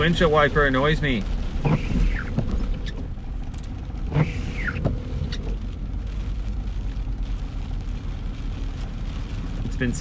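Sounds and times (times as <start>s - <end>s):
road and rain noise: 0.0s - 10.0s
windshield wiper squealing: 1.2s - 6.2s.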